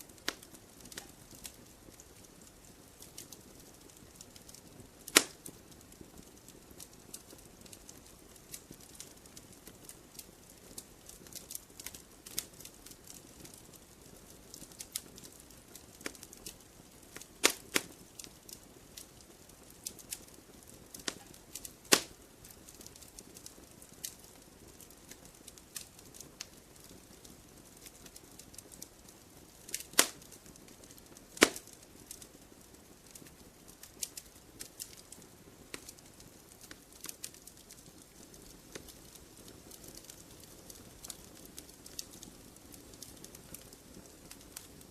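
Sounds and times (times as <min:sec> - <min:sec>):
wood fire crackling: 0:00.0 - 0:44.9
loud sharp fire pops: 0:04.4 - 0:05.6, 0:17.2 - 0:18.3, 0:21.0 - 0:22.2, 0:29.7 - 0:30.3, 0:31.3 - 0:32.2.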